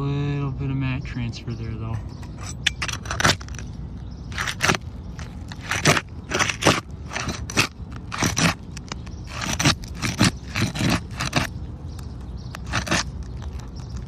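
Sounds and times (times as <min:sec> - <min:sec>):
tool scraping roof shingles: 0:02.2 - 0:03.7, 0:04.3 - 0:11.7, 0:12.5 - 0:14.0.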